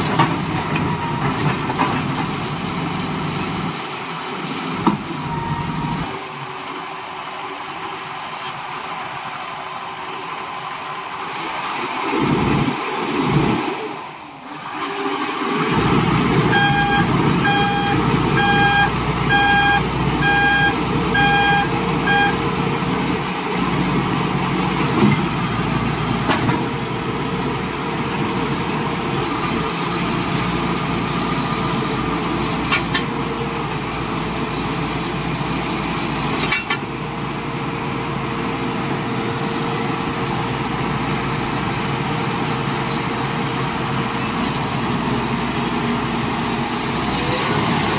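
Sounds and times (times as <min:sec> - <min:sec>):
diesel engine running: 0:00.0 - 0:47.9
motion alarm beeping: 0:16.5 - 0:22.4.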